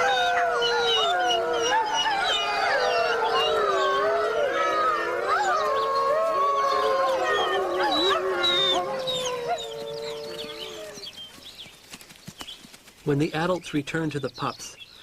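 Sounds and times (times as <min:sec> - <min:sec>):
wolves howling: 0:00.0 - 0:11.2.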